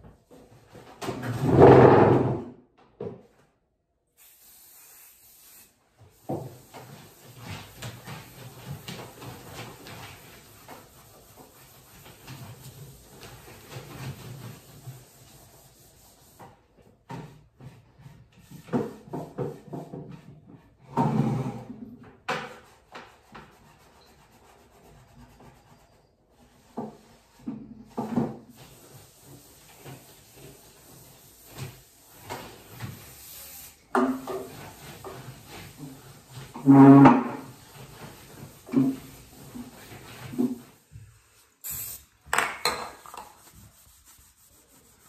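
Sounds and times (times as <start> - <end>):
household tidying knocks and clatter: 0.0 - 3.6, 6.1 - 15.0, 16.4 - 23.4, 26.7 - 33.2, 33.9 - 41.3, 42.3 - 43.7.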